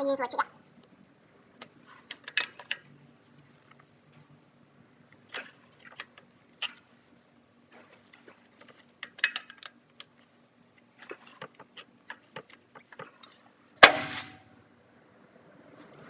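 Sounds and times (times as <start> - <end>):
loud ringing metal clank: 13.8 - 14.5.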